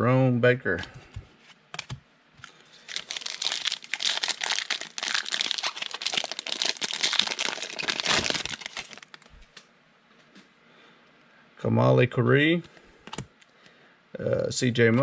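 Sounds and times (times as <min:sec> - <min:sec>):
plastic wrapper crinkling and tearing: 0:02.4 - 0:09.6.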